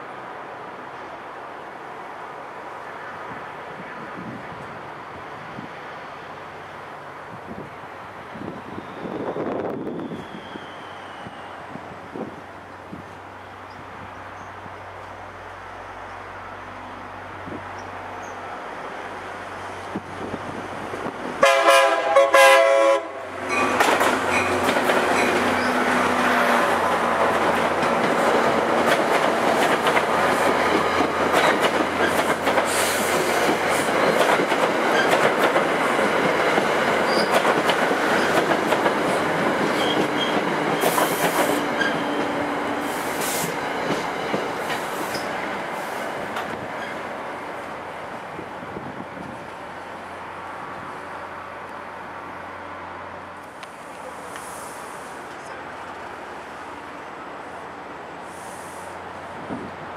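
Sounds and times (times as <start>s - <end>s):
high wheel squeals: 8.6s - 11.8s, 37.0s - 37.4s, 39.7s - 43.5s
locomotive horn blast: 21.4s - 23.8s
train wheels clattering: 23.5s - 26.1s, 26.8s - 45.5s.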